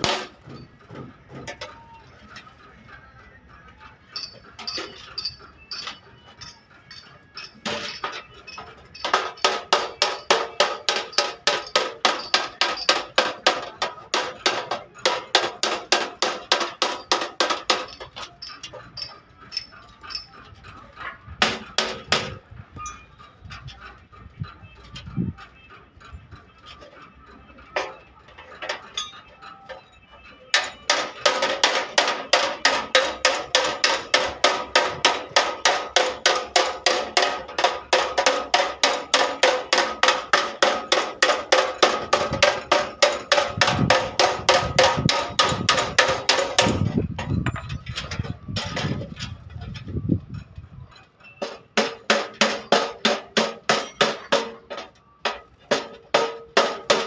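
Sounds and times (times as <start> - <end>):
hammer beating sheet metal: 0.0 - 1.6, 4.2 - 20.2, 21.4 - 22.4, 30.6 - 46.9, 51.5 - 57.0.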